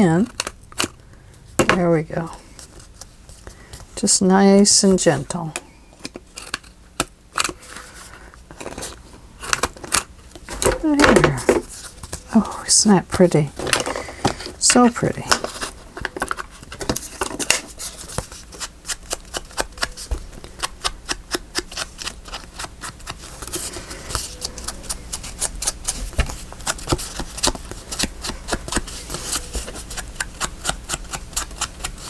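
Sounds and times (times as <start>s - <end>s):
clicks taps and rustles of paper: 9.5s - 32.0s.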